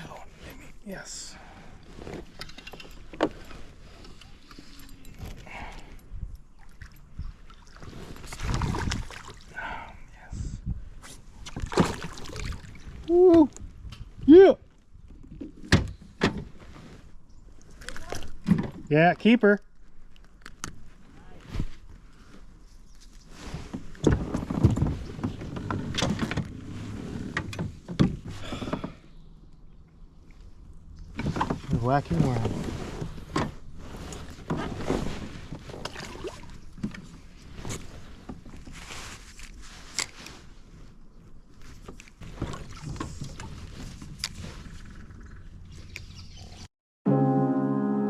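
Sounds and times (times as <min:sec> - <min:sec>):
low wind rumble: 0:05.4 - 0:17.5
rustling: 0:37.0 - 0:44.9
music: 0:47.0 - 0:48.0.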